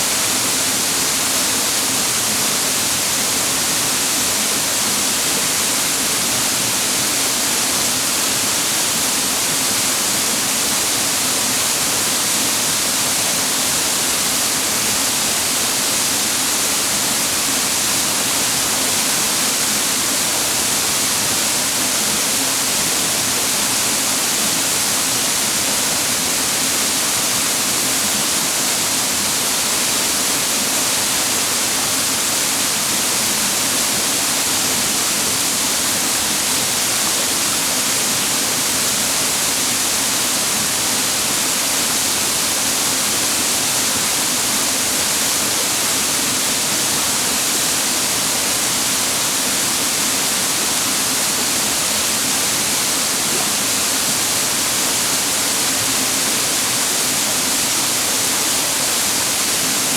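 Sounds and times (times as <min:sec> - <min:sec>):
water cascading over rocks: 0:00.1 - 0:59.9.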